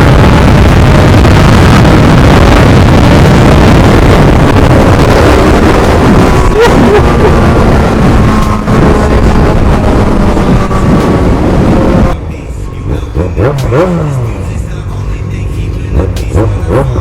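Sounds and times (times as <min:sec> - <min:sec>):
wind buffeting microphone: 0:00.0 - 0:12.2
motorcycle riding at speed: 0:00.0 - 0:17.0.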